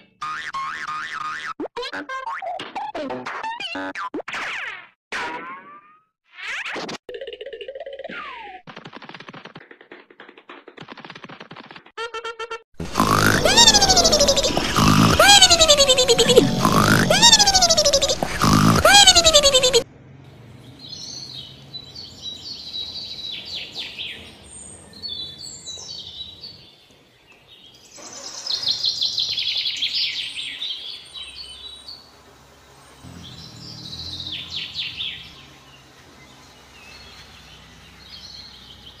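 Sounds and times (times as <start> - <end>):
small birds trilling: 12.8 - 19.8, 20.6 - 39.0.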